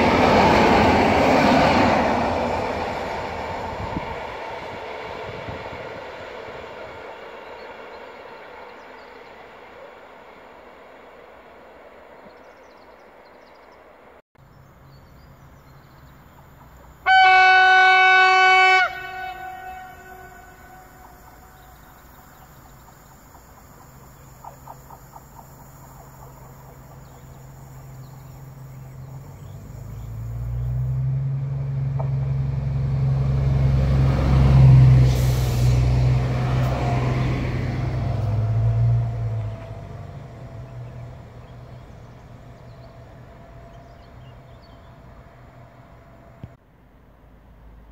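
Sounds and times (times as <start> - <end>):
train passing with rumble: 0.0 - 47.9
train horn blast: 17.0 - 22.0.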